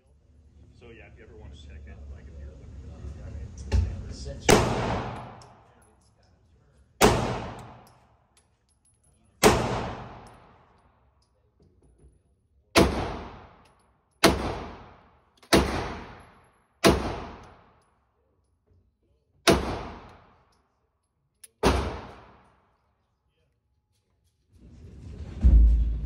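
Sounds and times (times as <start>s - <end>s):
gunshots with echoing tail: 4.5s - 5.6s, 7.0s - 7.9s, 9.4s - 10.6s, 12.8s - 13.6s, 14.2s - 17.7s, 19.5s - 20.3s, 21.6s - 22.4s.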